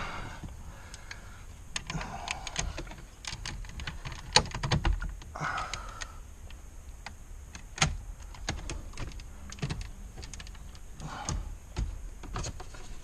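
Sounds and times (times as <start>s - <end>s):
plastic panel clicks and knocks: 2.6s - 5.3s, 7.6s - 12.9s.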